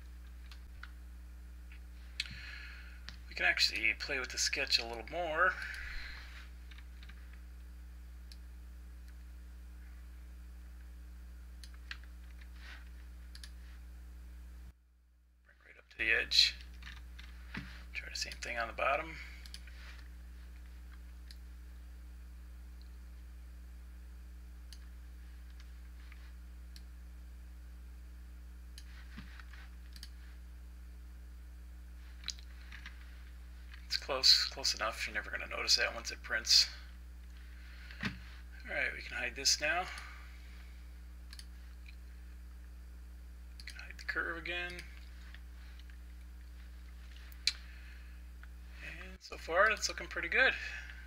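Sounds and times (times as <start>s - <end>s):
low electrical hum: 0.0s - 51.0s
computer mouse clicking: 13.3s - 13.6s, 28.8s - 30.2s.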